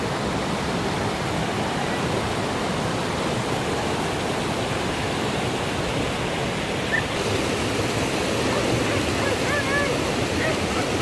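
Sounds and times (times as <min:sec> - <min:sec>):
rushing water: 0:00.0 - 0:11.0.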